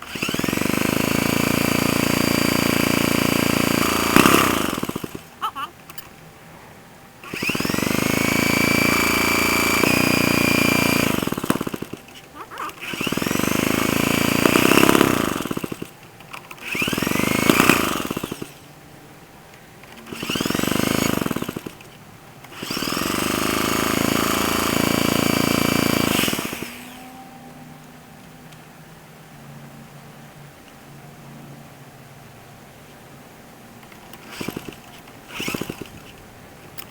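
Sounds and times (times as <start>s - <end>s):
small engine starting and dying: 0.0s - 6.1s, 7.2s - 18.7s, 19.8s - 27.7s, 33.8s - 36.2s.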